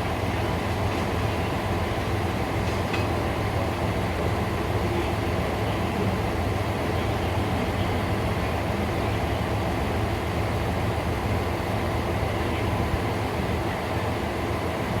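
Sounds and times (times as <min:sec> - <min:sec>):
diesel railcar engine drone: 0:00.0 - 0:15.0
rail running noise: 0:00.0 - 0:15.0.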